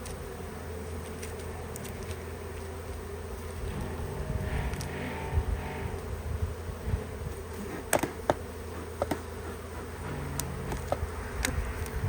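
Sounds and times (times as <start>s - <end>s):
bees buzzing: 0.0s - 12.0s
hive parts clicking and knocking: 0.9s - 5.1s, 7.8s - 12.0s.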